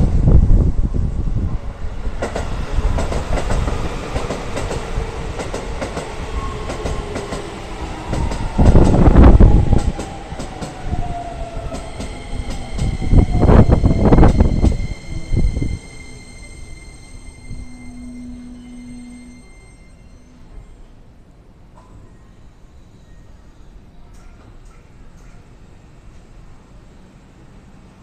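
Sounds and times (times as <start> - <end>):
wheels rumbling over rails: 0.0 - 20.8
steady high-pitched tones: 6.3 - 21.1
electric train motor whine: 11.5 - 20.5.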